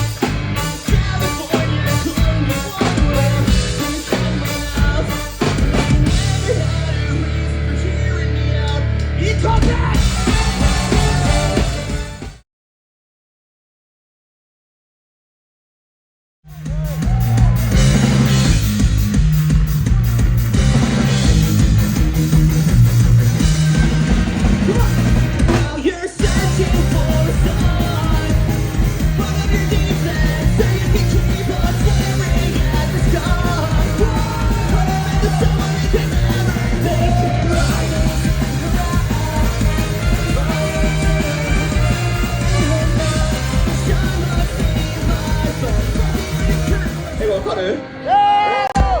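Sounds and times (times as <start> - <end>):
fast drum beat: 0.0 - 7.1, 9.5 - 12.3, 16.5 - 47.4
person shouting singing: 0.0 - 8.5, 9.2 - 12.1, 16.5 - 18.1, 23.8 - 49.0
guitars and bass: 0.0 - 12.4, 16.5 - 49.0
punk rock band playing: 0.0 - 12.4, 16.5 - 49.0
held horn-like notes: 10.0 - 12.4, 26.2 - 48.0.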